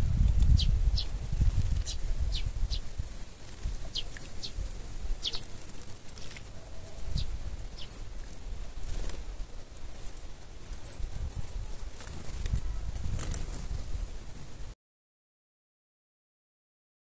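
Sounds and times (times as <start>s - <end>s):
wind on the microphone: 0.0s - 5.4s, 6.6s - 14.8s
small birds chirping: 0.1s - 13.9s.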